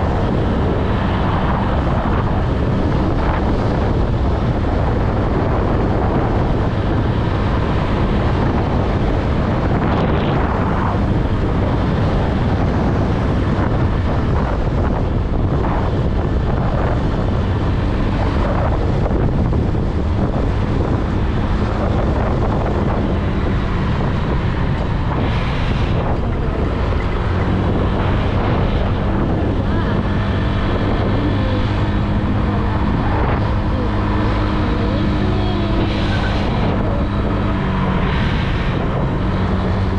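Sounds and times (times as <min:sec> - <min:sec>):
wind buffeting microphone: 0:00.0 - 0:39.9
scooter engine running: 0:26.1 - 0:39.2.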